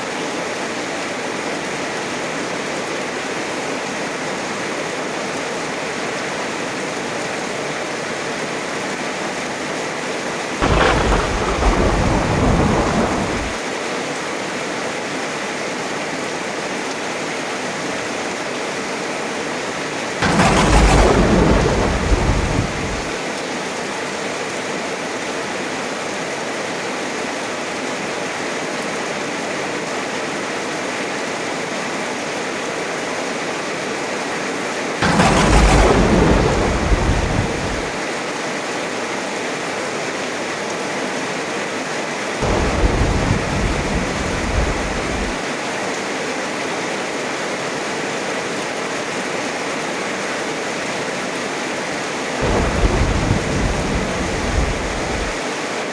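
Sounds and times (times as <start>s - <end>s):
heavy rain: 1.2s - 26.5s, 34.8s - 38.7s, 39.9s - 55.9s
thunder: 10.6s - 13.6s, 20.2s - 23.2s, 35.0s - 38.1s, 42.4s - 45.5s, 52.4s - 55.4s.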